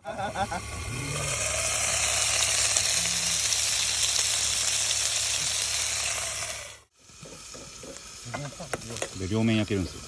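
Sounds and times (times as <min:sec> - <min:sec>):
food sizzling in a pan: 0:00.2 - 0:10.0.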